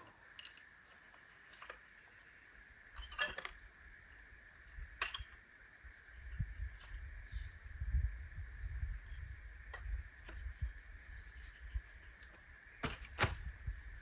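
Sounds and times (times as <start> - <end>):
camp gear clinking and rattling: 0.0 - 5.4, 9.1 - 11.9.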